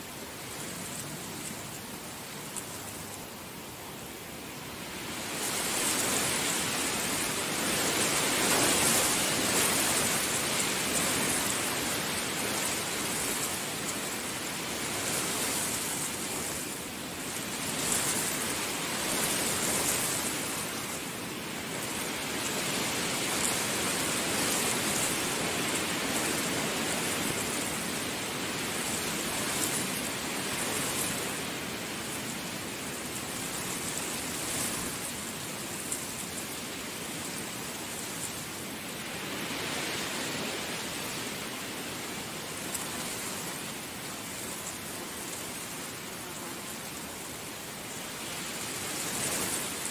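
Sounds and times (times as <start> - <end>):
heavy rain falling: 0.0 - 49.9.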